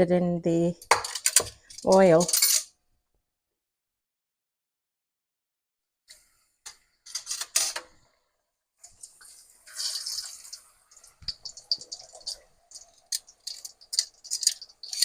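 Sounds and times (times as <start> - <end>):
dough deep-frying in oil: 6.1 - 15.0.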